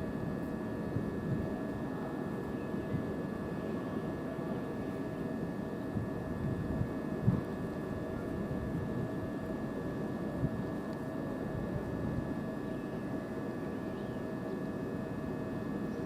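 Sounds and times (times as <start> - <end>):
electric train humming: 0.0 - 5.5
whining tones over low rumble: 0.0 - 16.0.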